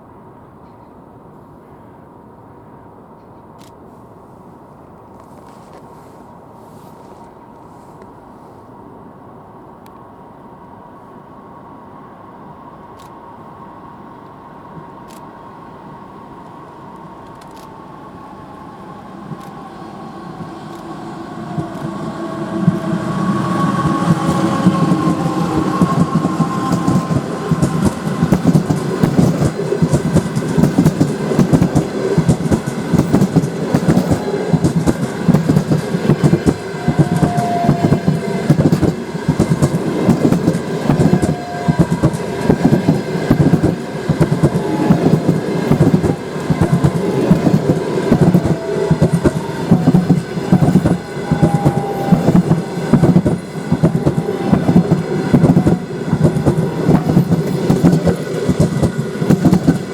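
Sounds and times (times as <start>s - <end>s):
train wheels clattering over rails: 19.2s - 59.9s.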